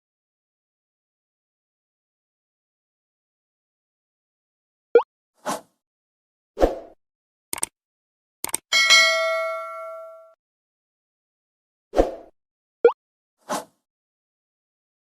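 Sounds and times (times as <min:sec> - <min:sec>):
metallic ding: 0:08.7 - 0:10.4.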